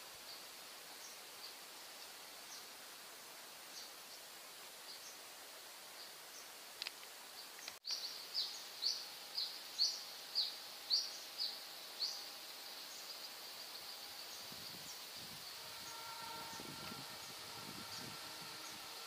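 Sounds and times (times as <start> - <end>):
faint high-pitched hum: 0.0 - 19.0
bird chirping: 7.4 - 19.0.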